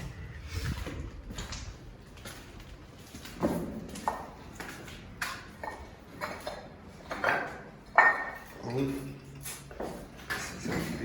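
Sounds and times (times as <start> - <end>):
wind buffeting microphone: 0.0 - 2.2.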